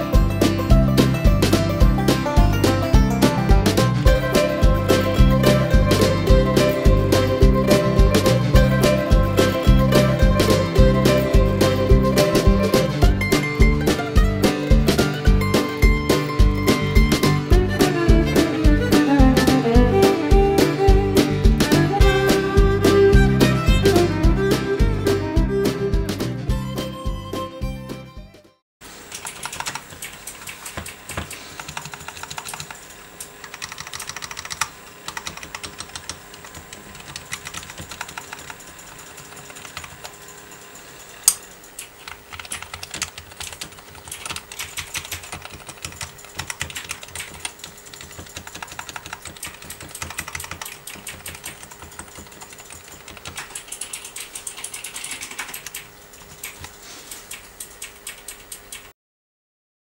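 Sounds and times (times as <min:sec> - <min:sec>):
rapid keyboard typing: 0:29.1 - 0:58.9.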